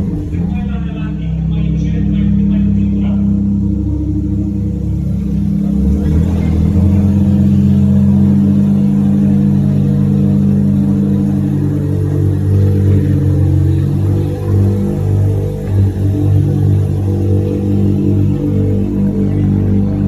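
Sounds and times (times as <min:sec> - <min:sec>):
rotary car engine at low revs: 0:00.0 - 0:20.0.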